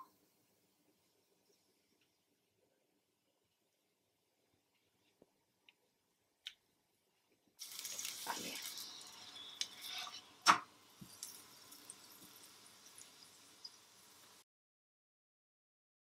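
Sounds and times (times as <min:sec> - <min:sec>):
oil sizzling in a frying pan: 0:07.6 - 0:14.4.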